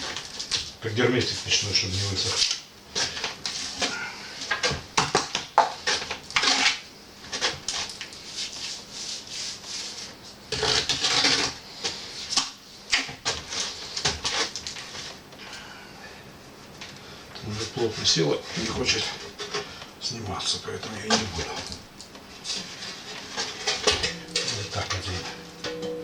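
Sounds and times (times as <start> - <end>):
metal pipe scraping: 22.5 - 26.0.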